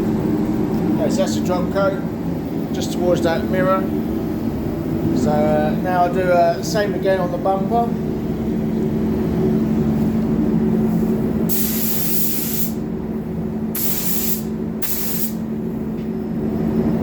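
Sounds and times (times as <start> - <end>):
air system humming: 0.0 - 17.0
paint spray gun hissing: 11.5 - 12.8, 13.8 - 15.4.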